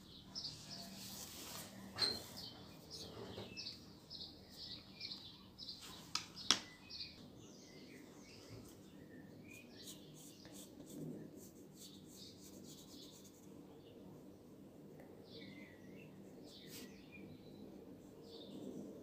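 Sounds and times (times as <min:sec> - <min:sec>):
bird chirping: 0:01.9 - 0:10.7.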